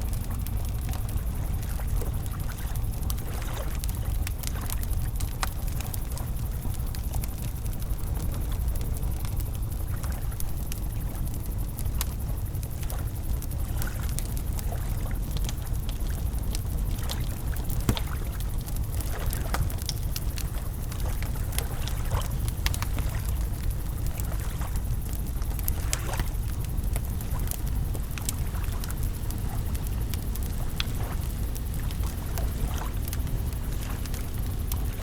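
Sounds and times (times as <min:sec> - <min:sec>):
campfire crackling: 0:00.0 - 0:35.0
sharp pops of fire: 0:16.5 - 0:35.0.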